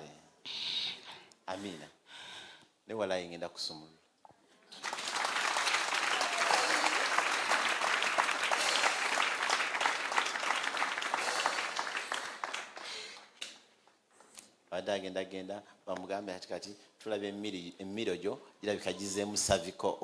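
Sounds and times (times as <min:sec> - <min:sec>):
congregation applauding: 0:04.7 - 0:13.4.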